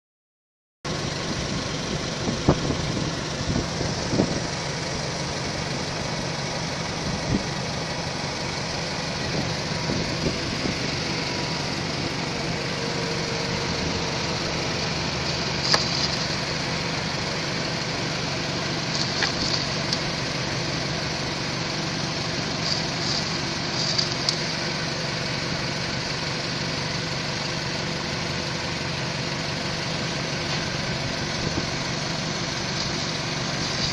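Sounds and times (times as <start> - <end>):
car engine idling with knock: 0.9 - 33.9
sharp engine ticks: 22.4 - 24.6.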